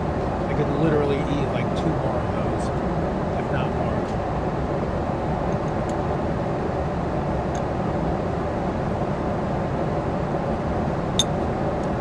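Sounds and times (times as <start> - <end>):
airliner cabin rumble and hiss: 0.0 - 12.0.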